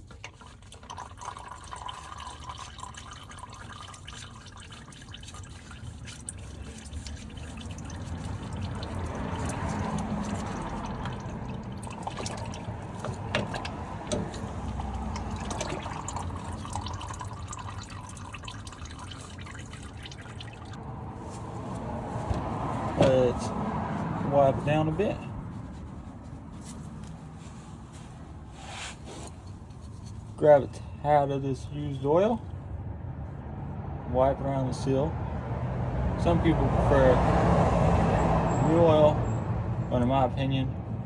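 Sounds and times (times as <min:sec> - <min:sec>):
oil pouring into drain pan: 0:00.0 - 0:20.8.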